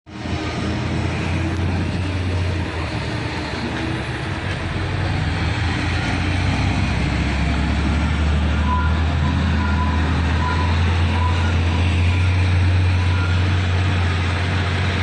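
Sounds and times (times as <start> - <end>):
diesel machinery engine drone: 0.1 - 15.0.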